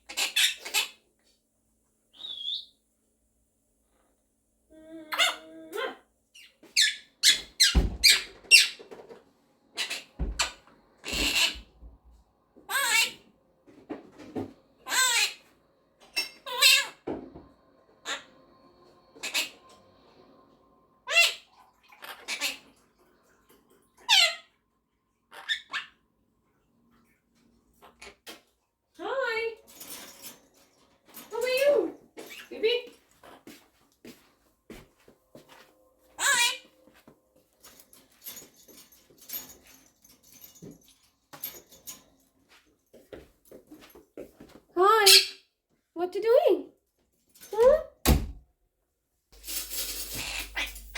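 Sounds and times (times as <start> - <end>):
parrot calls and chirps: 0.0 - 1.0, 2.2 - 2.7, 4.8 - 9.0, 9.7 - 11.7, 12.7 - 13.3, 14.8 - 17.1, 18.0 - 20.3, 21.0 - 22.8, 24.0 - 24.6, 25.3 - 26.0, 31.3 - 33.4, 36.1 - 36.8, 44.9 - 45.5, 49.7 - 50.9
parakeet calling: 6.4 - 8.8, 9.8 - 11.7, 12.7 - 13.2, 14.8 - 15.4, 16.1 - 17.0, 19.1 - 19.8, 21.0 - 22.6, 36.2 - 36.7, 50.0 - 50.9
harsh parakeet squawks: 9.8 - 11.7, 12.7 - 13.2, 14.8 - 15.4, 16.2 - 17.0, 19.2 - 19.7, 21.0 - 22.6, 24.0 - 24.5, 25.3 - 26.0, 36.2 - 36.7.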